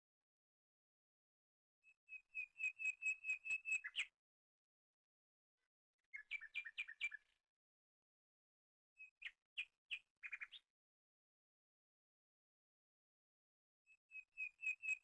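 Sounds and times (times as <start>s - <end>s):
bird whistling calls: 2.4s - 4.1s.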